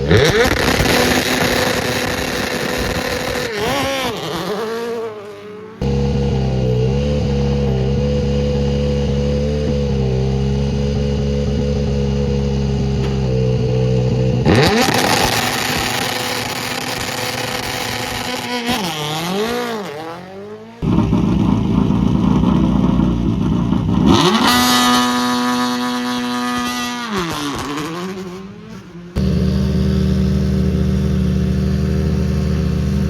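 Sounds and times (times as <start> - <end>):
rally car accelerating hard: 0.0 - 33.0
rally car engine idling: 5.8 - 18.0, 20.8 - 24.1, 29.2 - 33.0.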